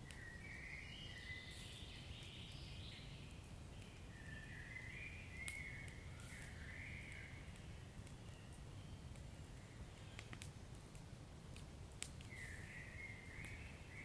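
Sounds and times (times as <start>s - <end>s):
fire crackle pops: 0.0s - 14.0s
wood fire rumbling: 5.4s - 13.9s.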